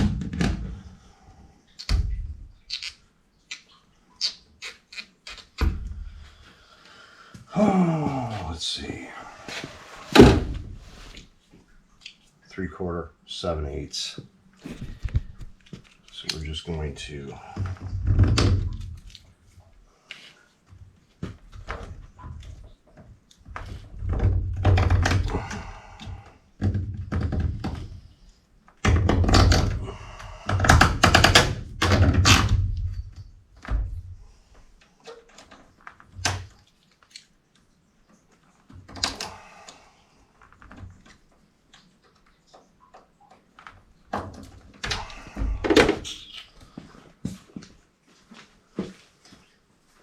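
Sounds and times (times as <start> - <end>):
thuds knocks and rattling of tools: 9.6 - 11.2, 14.6 - 16.0, 44.1 - 46.1.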